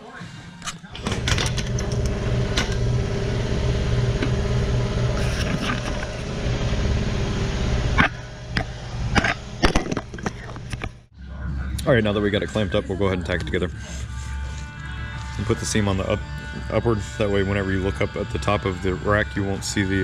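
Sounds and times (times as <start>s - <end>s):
machine motor running: 0.9s - 11.0s.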